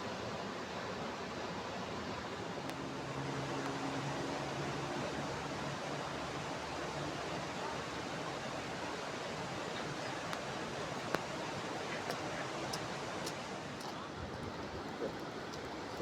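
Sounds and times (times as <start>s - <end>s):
water rushing in stream: 0.0s - 16.0s.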